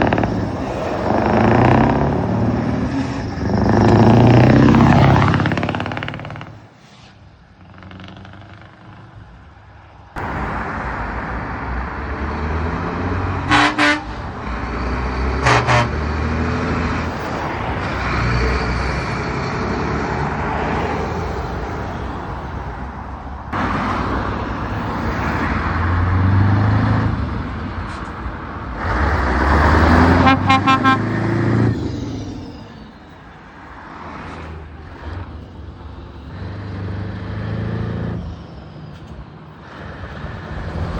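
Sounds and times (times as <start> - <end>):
diesel truck engines revving: 0.0 - 40.9
rapid horn toots: 13.4 - 14.2, 15.4 - 16.1, 30.0 - 31.3
truck horn blasts: 13.4 - 14.2, 15.3 - 16.2, 30.0 - 31.4.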